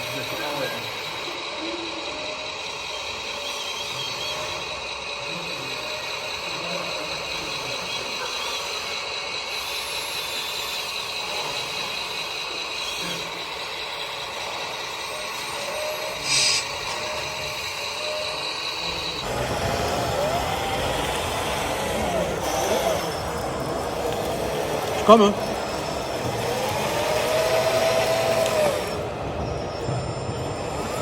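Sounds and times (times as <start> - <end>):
model truck motors whining: 0.0 - 31.0
short loud air hiss: 16.2 - 17.0.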